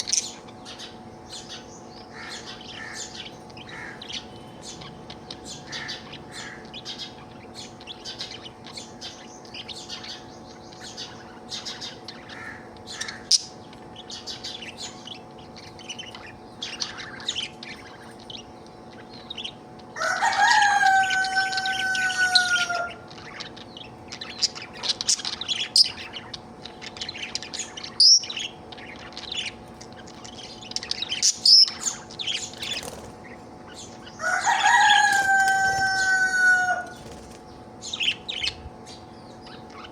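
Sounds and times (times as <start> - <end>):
budgerigar chattering and warbling: 0.0 - 19.6
faint steady hum: 0.0 - 39.9
loud drawn-out bird call: 20.0 - 23.1, 34.1 - 37.0.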